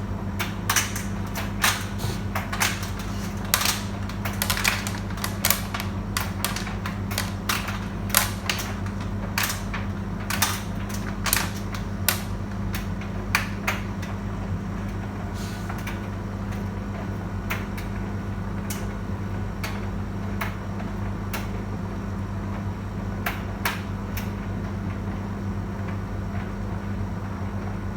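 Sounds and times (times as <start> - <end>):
tumble dryer motor hum: 0.0 - 27.9
load knocking in dryer drum: 0.6 - 12.8.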